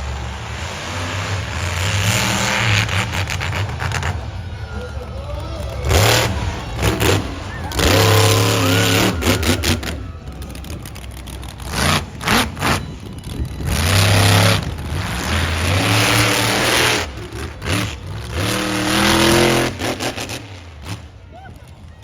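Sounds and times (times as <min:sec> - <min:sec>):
exhaust crackles and pops: 0:00.0 - 0:22.0
truck engine revving: 0:00.0 - 0:22.0.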